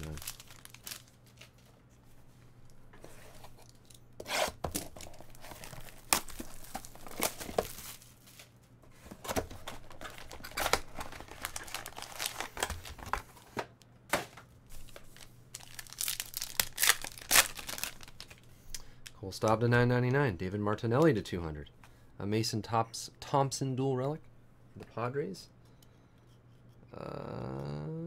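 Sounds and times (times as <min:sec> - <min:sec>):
card pack wrappers tearing and crinkling: 0:00.0 - 0:01.7, 0:04.7 - 0:08.5, 0:09.3 - 0:13.3, 0:14.8 - 0:18.8.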